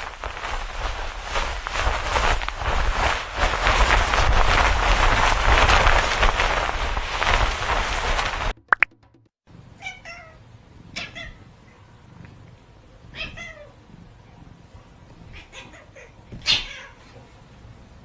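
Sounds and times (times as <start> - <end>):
cat meowing: 9.8 - 11.5, 13.1 - 13.8, 15.3 - 17.2.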